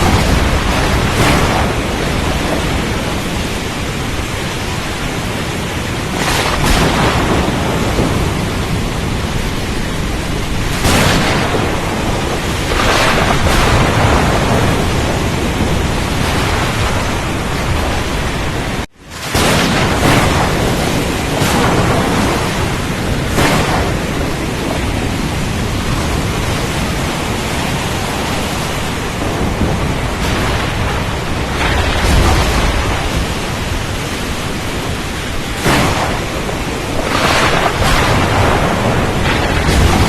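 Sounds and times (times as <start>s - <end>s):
rain: 0.0s - 40.0s
surf: 0.0s - 40.0s.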